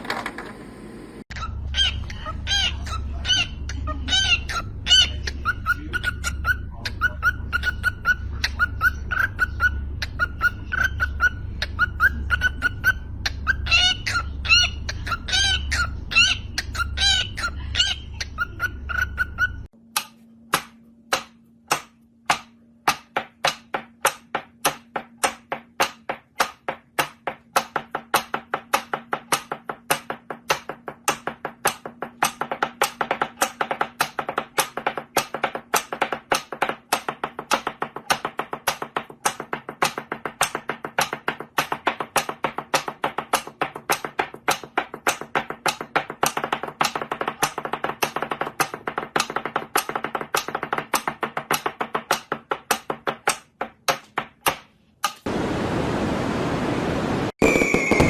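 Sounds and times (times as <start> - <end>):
birds chirping: 0.0 - 19.7.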